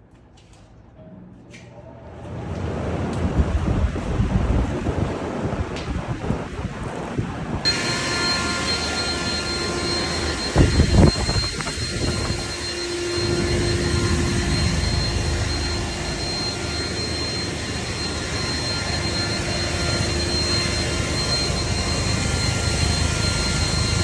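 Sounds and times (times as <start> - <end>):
air blower running: 7.6 - 24.0.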